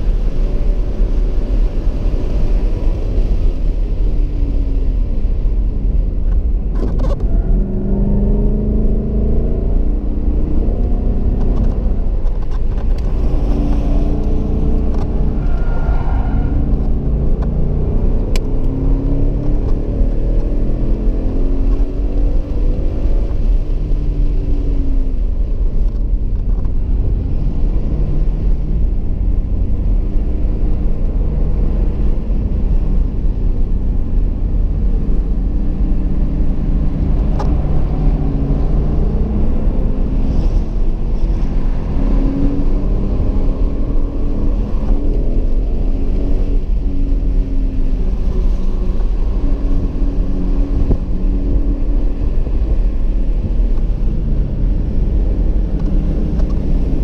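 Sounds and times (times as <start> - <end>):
car engine accelerating: 0.0 - 57.0
road and drivetrain rumble: 0.0 - 57.0.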